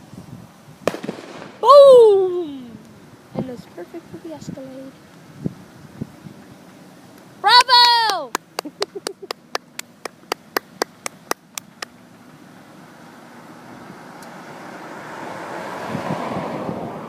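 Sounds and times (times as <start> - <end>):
hand clapping: 7.5 - 12.0.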